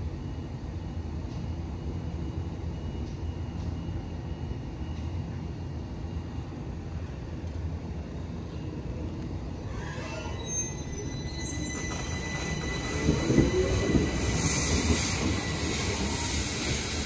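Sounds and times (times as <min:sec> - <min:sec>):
electric train rumble: 0:00.0 - 0:17.0
high-pitched wheel squeal: 0:09.6 - 0:17.0.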